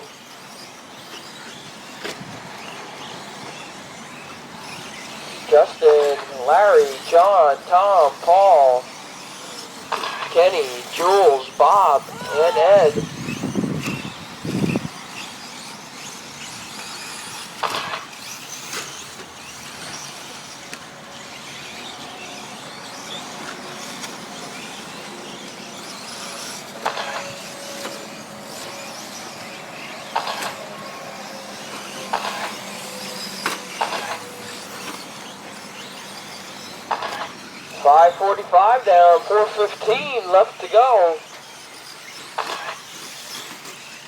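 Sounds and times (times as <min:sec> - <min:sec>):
toy truck motors hissing: 0:00.1 - 0:05.5, 0:12.1 - 0:37.7, 0:41.0 - 0:44.0.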